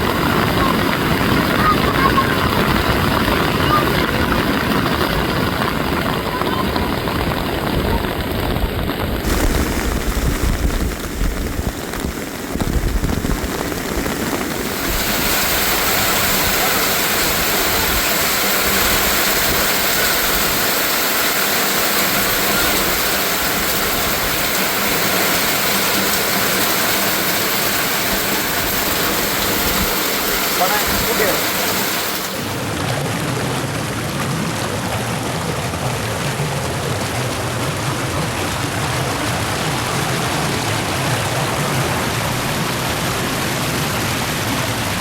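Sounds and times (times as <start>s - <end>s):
steady hiss of water: 0.0s - 45.0s
low rumble: 5.2s - 16.7s.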